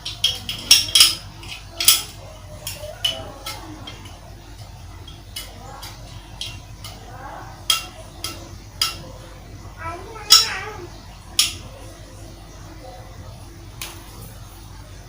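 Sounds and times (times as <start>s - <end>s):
spoon clinking on cookware: 0.0s - 9.2s, 10.3s - 11.8s.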